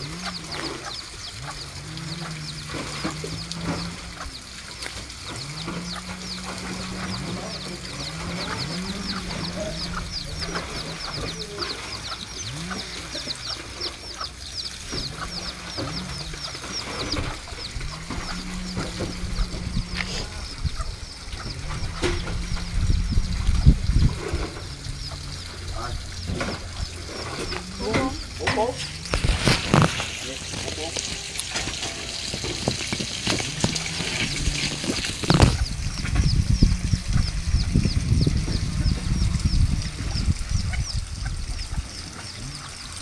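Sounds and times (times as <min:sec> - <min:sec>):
high bird chirps: 0:00.0 - 0:30.9
drawn-out bird calls: 0:00.0 - 0:43.0.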